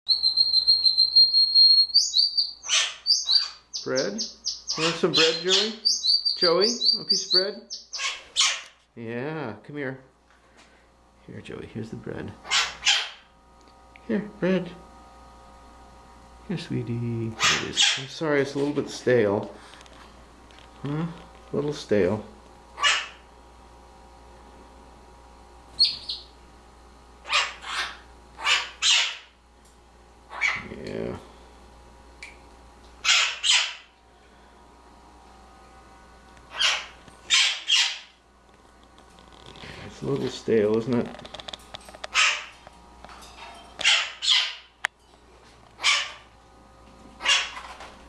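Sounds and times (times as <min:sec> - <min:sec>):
parrot calls: 0:00.1 - 0:08.8, 0:12.4 - 0:13.3, 0:17.4 - 0:18.1, 0:22.8 - 0:23.2, 0:25.8 - 0:26.4, 0:27.2 - 0:29.4, 0:30.3 - 0:30.7, 0:33.0 - 0:33.9, 0:36.5 - 0:38.2, 0:42.1 - 0:42.6, 0:43.8 - 0:44.8, 0:45.8 - 0:46.3, 0:47.2 - 0:47.7
parrot squawks: 0:00.1 - 0:08.8, 0:12.4 - 0:13.3, 0:17.4 - 0:18.1, 0:22.8 - 0:23.2, 0:25.8 - 0:26.3, 0:27.2 - 0:29.3, 0:30.3 - 0:30.6, 0:33.0 - 0:33.9, 0:36.5 - 0:38.2, 0:42.1 - 0:42.5, 0:43.8 - 0:44.7, 0:45.8 - 0:46.2, 0:47.2 - 0:47.6.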